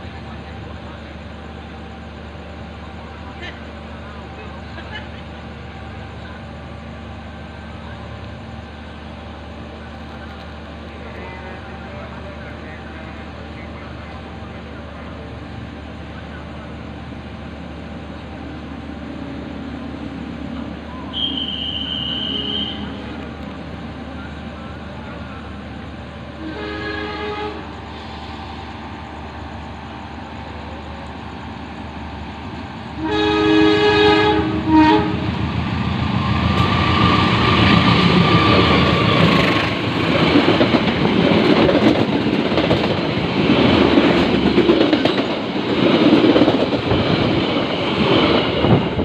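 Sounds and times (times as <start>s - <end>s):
passing train wheels and coaches: 0.0s - 49.0s
diesel locomotive horn blasts: 21.1s - 23.1s, 26.4s - 27.8s, 33.0s - 35.4s.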